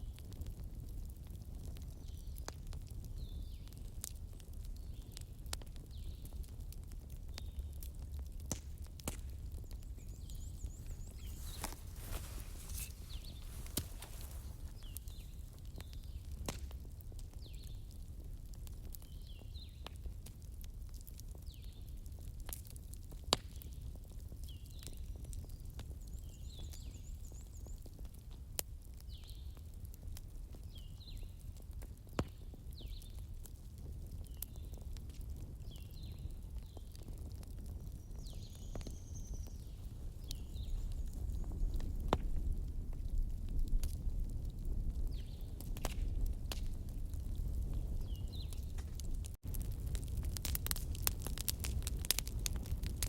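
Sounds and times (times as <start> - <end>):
wood fire crackling and popping: 0.0 - 53.0
birds chirping: 9.8 - 15.4.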